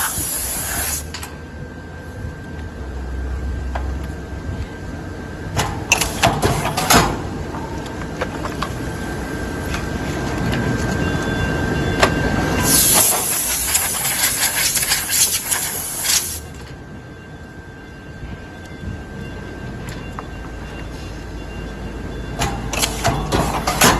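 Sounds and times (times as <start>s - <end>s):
loud hiss with rapid clicking: 0.0s - 1.1s, 12.7s - 16.4s
machine noise with thin whine: 0.0s - 23.9s.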